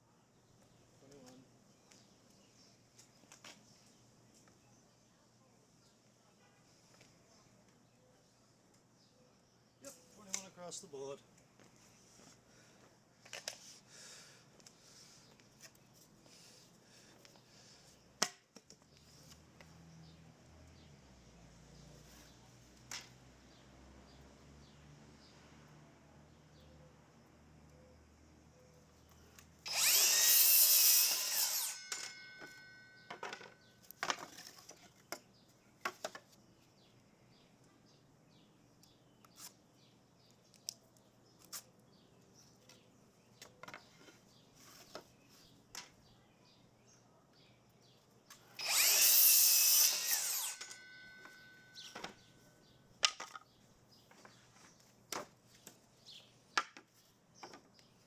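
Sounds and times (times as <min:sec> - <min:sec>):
power tool cutting wood: 0:29.7 - 0:33.0, 0:48.6 - 0:52.1
knocks of handling wood and tools: 0:31.8 - 0:36.4, 0:42.6 - 0:46.0, 0:50.6 - 0:52.4, 0:53.0 - 0:58.0.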